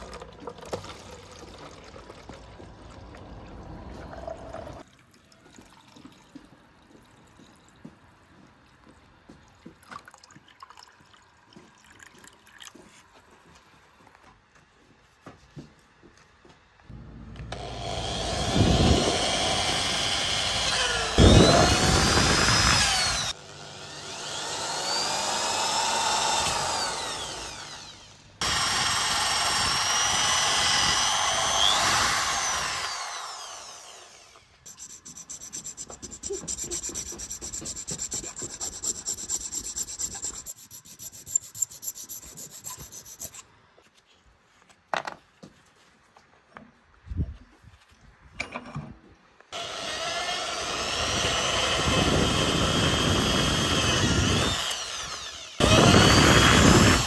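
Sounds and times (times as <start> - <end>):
electric power tool motor: 17.4 - 43.3, 49.6 - 57.0
scraping strokes: 34.7 - 43.4.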